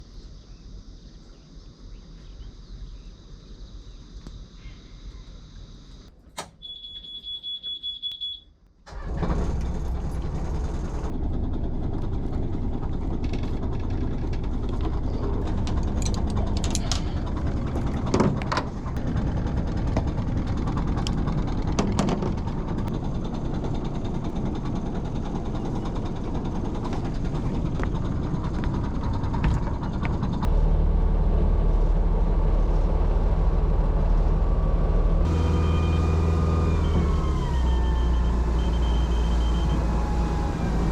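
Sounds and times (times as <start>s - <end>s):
boat engine running: 8.9s - 40.9s.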